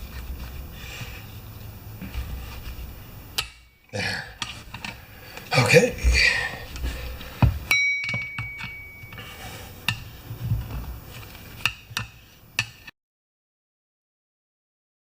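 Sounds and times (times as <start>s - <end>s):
metal tools clanking on wheel rim: 3.4s - 10.8s
metallic ping ringing: 7.7s - 9.4s.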